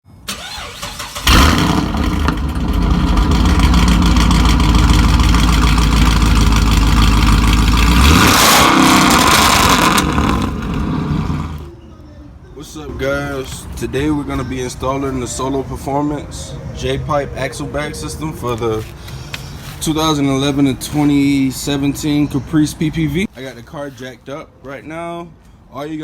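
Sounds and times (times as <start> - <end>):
car engine starting and rumbling: 0.2 - 11.7.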